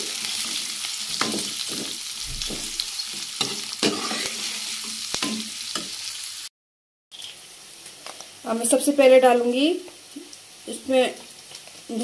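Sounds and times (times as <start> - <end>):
onions sizzling in hot oil: 0.0 - 6.5, 7.1 - 12.0
ladle scraping and knocking pan: 3.4 - 4.6.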